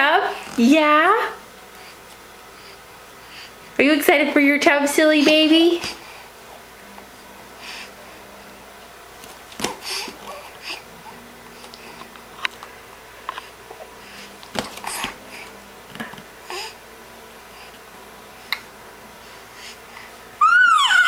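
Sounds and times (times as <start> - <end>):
baby breathing and sniffing: 9.7 - 10.9, 13.3 - 15.6.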